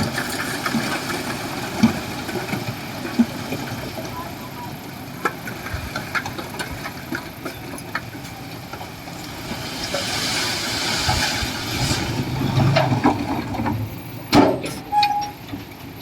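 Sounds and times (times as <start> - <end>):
construction machine engine running: 0.0 - 9.9.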